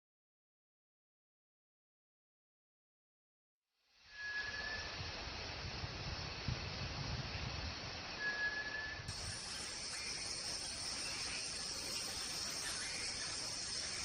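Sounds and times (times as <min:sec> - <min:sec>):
high whistled note: 0:04.1 - 0:05.0, 0:08.2 - 0:14.0
insect chorus: 0:08.2 - 0:14.0.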